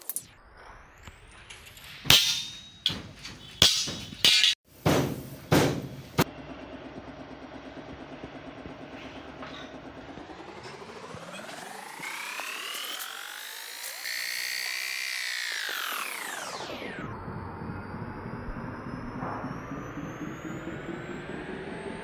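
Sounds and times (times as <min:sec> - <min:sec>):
hammering on metal: 0:02.1 - 0:06.2
motor hum with fast pulsing: 0:06.2 - 0:22.0.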